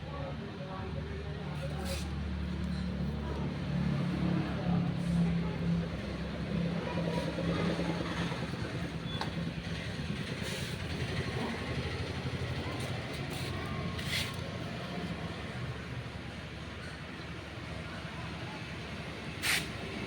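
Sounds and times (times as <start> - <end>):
hissing bursts: 19.4 - 19.8.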